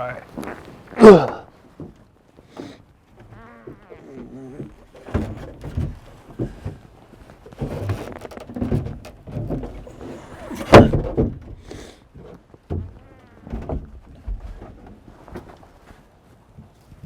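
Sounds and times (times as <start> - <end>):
wooden platform knocking and scraping: 3.6 - 15.6.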